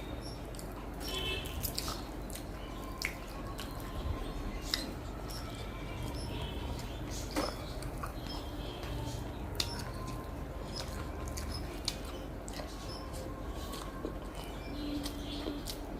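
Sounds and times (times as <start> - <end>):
wet chewing and mouth smacks: 1.4 - 4.0.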